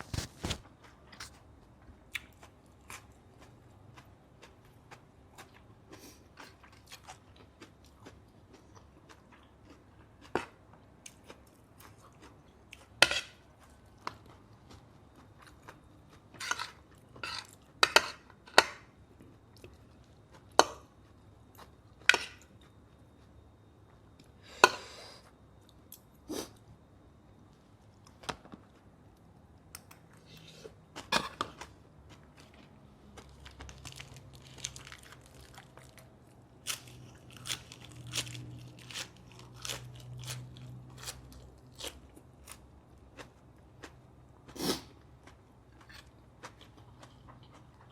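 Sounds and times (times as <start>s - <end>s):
chewing food: 2.1s - 17.7s, 29.8s - 47.9s
cutlery scraping against plate: 13.0s - 13.4s, 16.4s - 18.8s.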